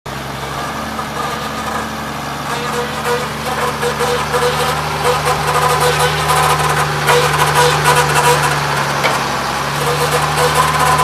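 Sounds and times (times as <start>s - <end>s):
truck engine idling: 0.1s - 11.0s.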